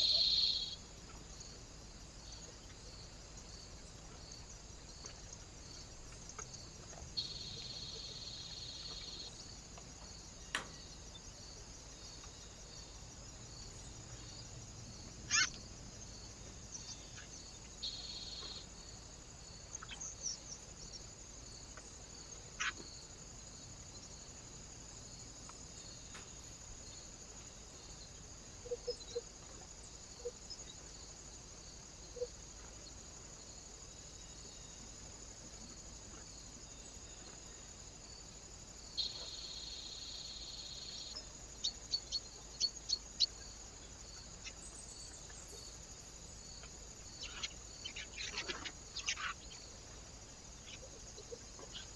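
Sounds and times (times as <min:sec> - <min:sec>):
short bird calls: 0:00.0 - 0:00.8, 0:15.3 - 0:15.6.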